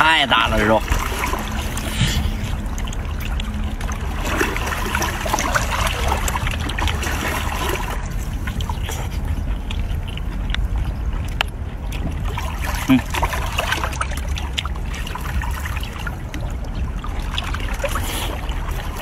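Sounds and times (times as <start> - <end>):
steady low rumble: 0.0 - 19.0
wet chewing: 5.3 - 13.2.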